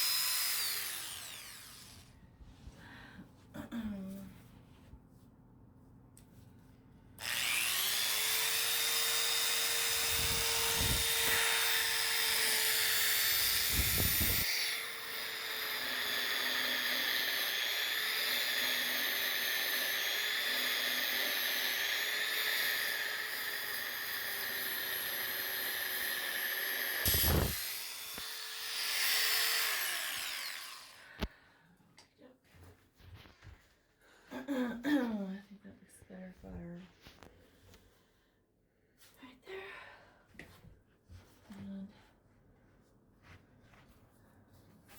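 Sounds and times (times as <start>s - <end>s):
electric power sander whining: 0.0s - 2.0s, 7.2s - 31.2s.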